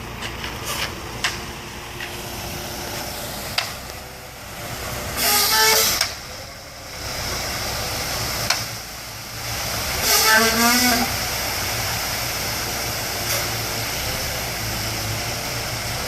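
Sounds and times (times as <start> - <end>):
heavy diesel equipment running: 0.0 - 16.0
loud hiss with horn-like tone: 4.8 - 16.0.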